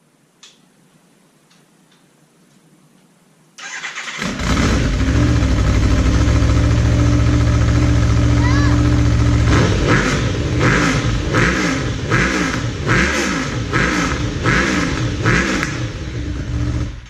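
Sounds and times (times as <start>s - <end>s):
motorcycle engine idling and revving: 3.6s - 17.0s.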